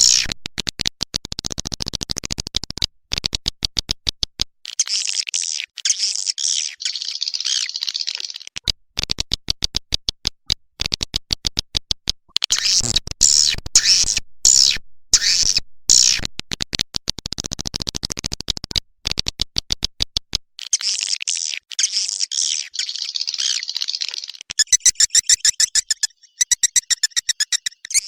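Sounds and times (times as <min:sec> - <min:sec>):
high twittering bird calls: 0:22.4 - 0:28.0
rapid sharp clicks: 0:24.5 - 0:28.0.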